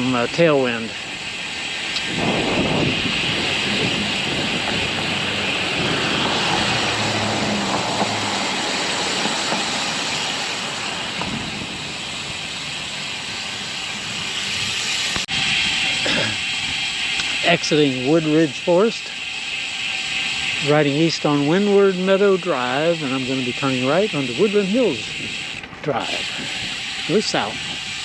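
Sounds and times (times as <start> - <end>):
tyres hissing on damp pavement: 0.0 - 28.0
wind over microphone: 1.9 - 12.6, 23.9 - 28.0.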